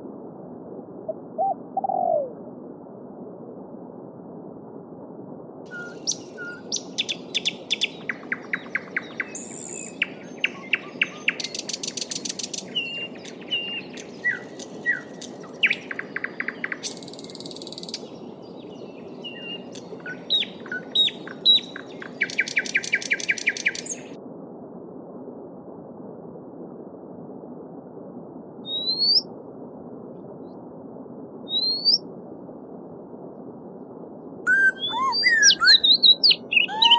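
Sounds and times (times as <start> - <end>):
songbirds chirping and trilling: 5.7 - 24.1, 34.5 - 36.9
babbling stream: 34.5 - 36.9.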